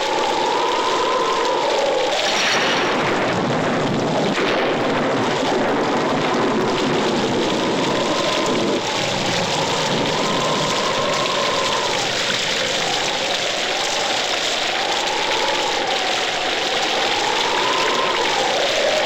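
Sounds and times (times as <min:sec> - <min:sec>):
wavering whistling tone: 0:00.0 - 0:03.2, 0:07.5 - 0:19.0
rain-like hiss: 0:00.0 - 0:19.0.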